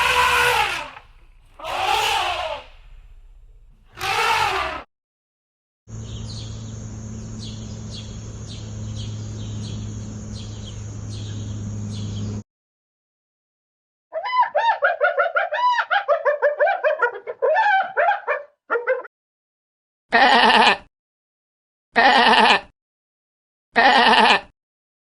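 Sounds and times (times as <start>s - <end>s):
animal chirps: 0.0s - 2.9s
rapid chirping calls: 0.0s - 3.1s
low hum: 0.0s - 4.5s.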